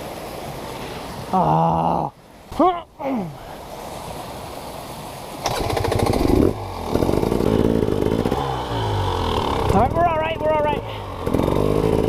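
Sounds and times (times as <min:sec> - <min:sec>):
dirt bike engine revving: 0:05.4 - 0:12.0.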